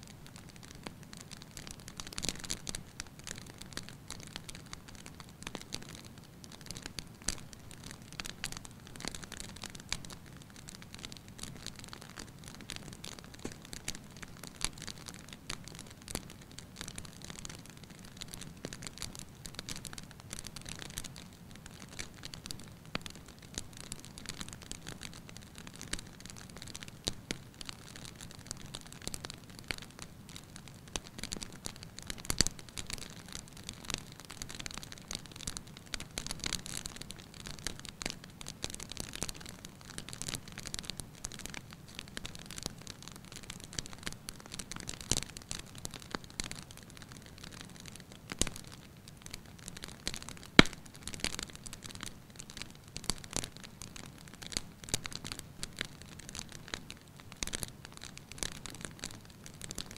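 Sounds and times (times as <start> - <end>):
wood fire crackling: 0.0 - 59.9
flame rumble: 50.1 - 50.8.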